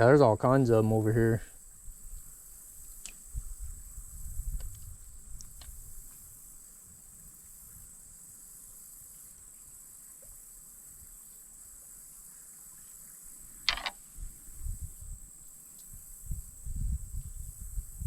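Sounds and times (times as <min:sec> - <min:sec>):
insects buzzing: 0:00.0 - 0:18.0
sharp click: 0:13.7 - 0:14.0.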